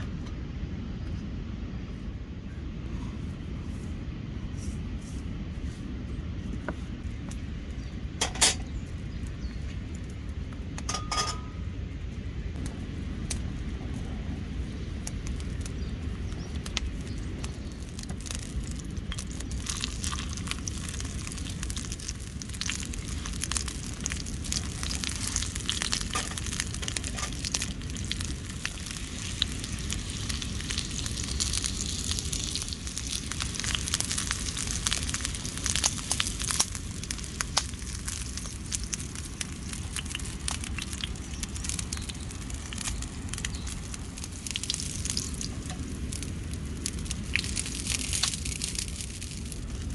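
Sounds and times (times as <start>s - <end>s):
low rumble: 0.0s - 49.9s
food sizzling in oil: 17.4s - 49.5s.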